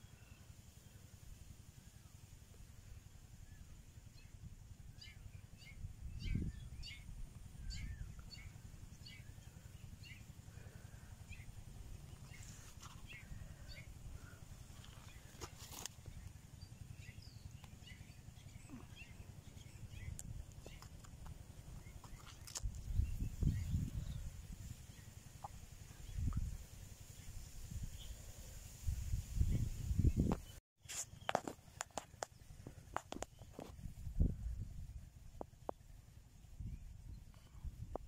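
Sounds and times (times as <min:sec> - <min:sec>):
small birds chirping: 0:01.8 - 0:38.0
wind rumble on microphone: 0:03.3 - 0:10.2, 0:16.0 - 0:30.6, 0:32.4 - 0:38.0.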